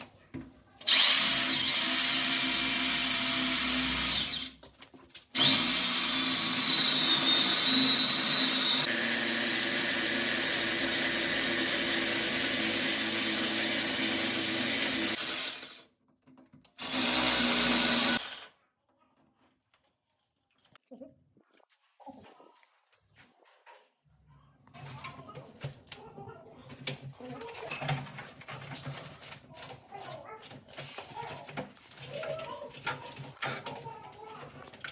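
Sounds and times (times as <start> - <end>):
power drill whining: 0.9 - 4.5, 5.4 - 15.9, 16.8 - 18.5.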